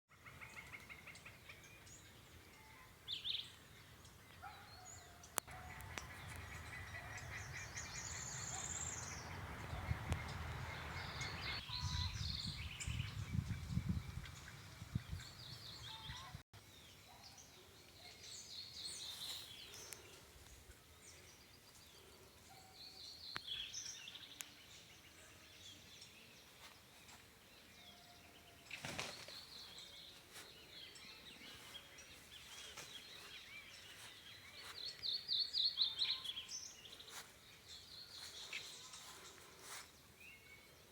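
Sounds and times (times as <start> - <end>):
birds calling and chirping: 3.1 - 16.4.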